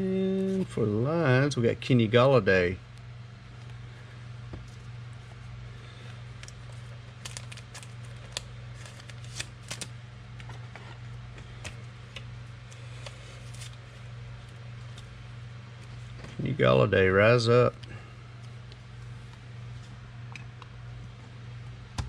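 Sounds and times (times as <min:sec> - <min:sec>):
steady low hum: 0:00.0 - 0:22.0
trading cards being flipped: 0:06.3 - 0:15.2.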